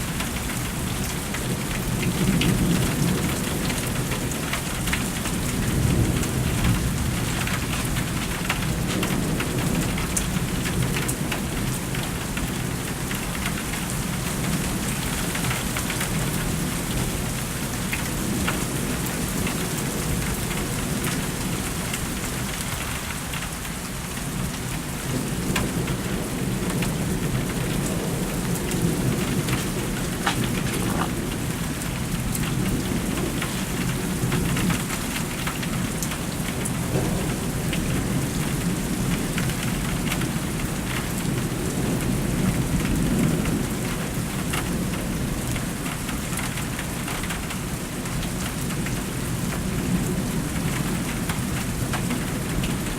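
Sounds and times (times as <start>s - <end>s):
steady rain falling: 0.0s - 52.9s
rain drop ticks: 28.6s - 37.8s.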